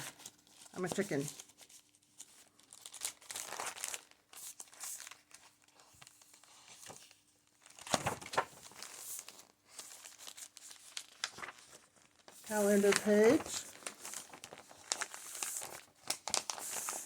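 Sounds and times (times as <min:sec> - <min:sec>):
paper pages turning and rustling: 0:00.0 - 0:17.0.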